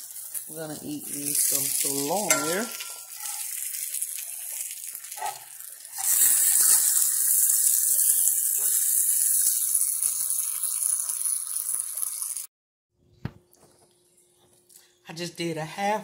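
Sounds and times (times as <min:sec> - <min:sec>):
meat sizzling in hot oil: 0:00.0 - 0:12.5.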